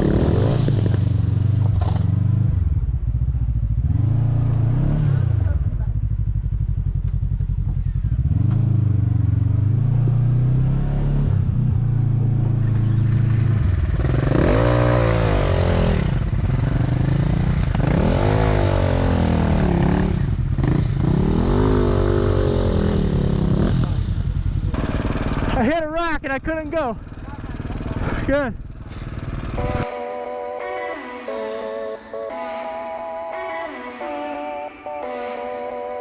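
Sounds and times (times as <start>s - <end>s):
dirt bike engine revving: 0.0s - 2.1s, 12.6s - 30.0s.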